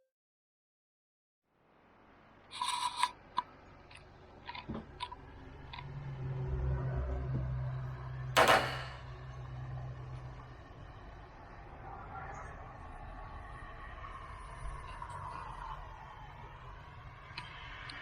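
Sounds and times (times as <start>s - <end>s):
scrape against camera: 2.5s - 3.2s.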